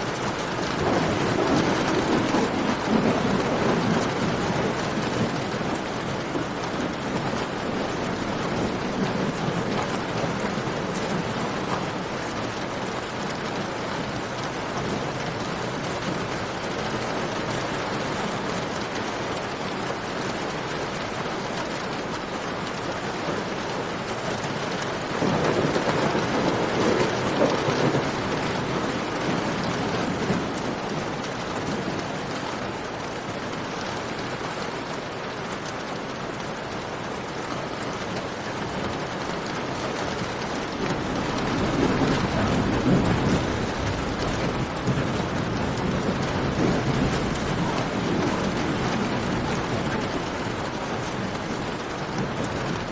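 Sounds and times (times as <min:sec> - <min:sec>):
steady rain pouring: 0:00.0 - 0:52.9.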